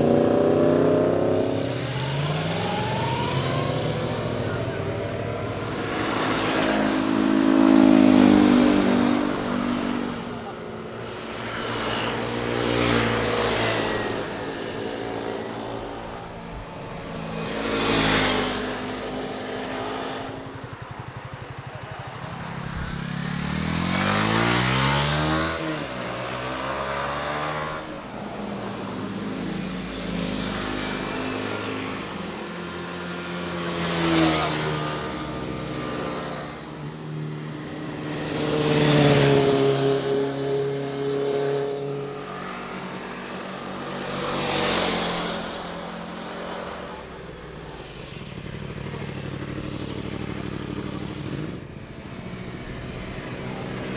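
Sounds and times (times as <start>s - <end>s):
motorcycle engine revving up: 0.0s - 10.5s, 17.4s - 27.9s
motorcycles passing by: 0.0s - 53.9s.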